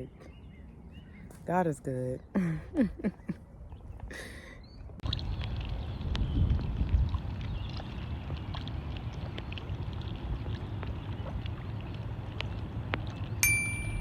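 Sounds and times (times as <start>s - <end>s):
wind rumble on microphone: 3.2s - 14.0s.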